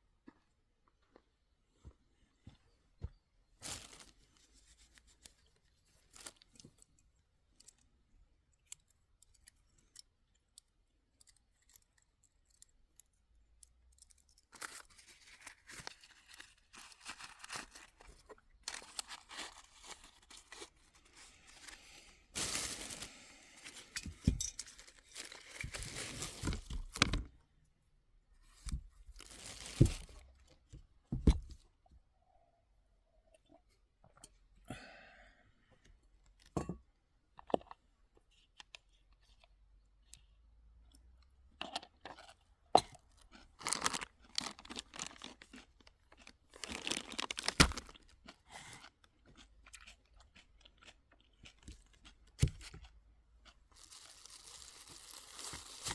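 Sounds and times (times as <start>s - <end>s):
small clicks and ticks: 8.6s - 14.8s
rustling and tearing: 14.4s - 27.3s, 28.6s - 30.3s, 43.6s - 45.7s, 46.6s - 48.0s, 53.7s - 55.9s.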